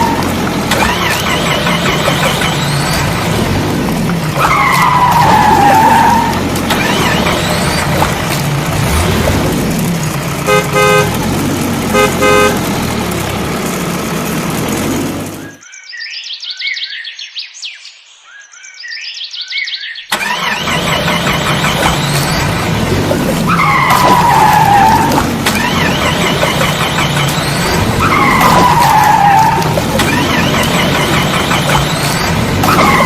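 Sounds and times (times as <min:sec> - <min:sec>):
heavy vehicle engine running: 0:00.0 - 0:15.6, 0:20.2 - 0:33.0
short horn toots: 0:10.4 - 0:11.2, 0:11.9 - 0:12.7.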